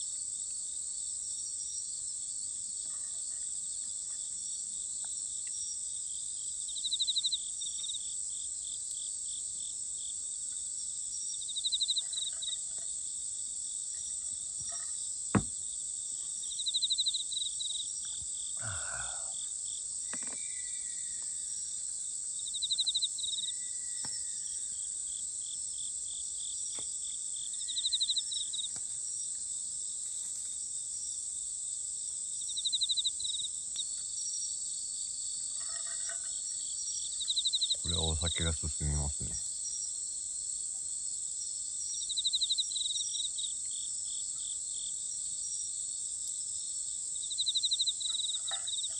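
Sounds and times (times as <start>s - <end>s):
insects trilling: 3.2s - 48.9s
pulsed insect chirp: 22.4s - 24.8s.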